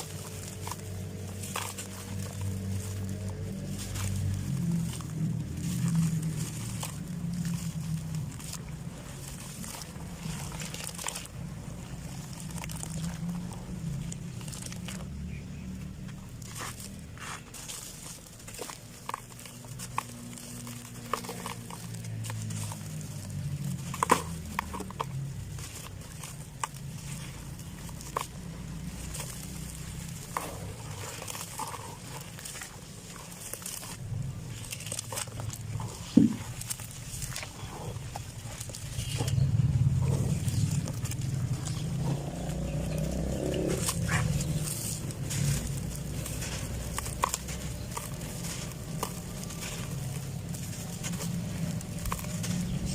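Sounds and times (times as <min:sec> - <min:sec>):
dry clods crumbling: 0:00.0 - 0:52.9
low rumbling: 0:00.0 - 0:52.9
low steady hum: 0:00.0 - 0:52.9.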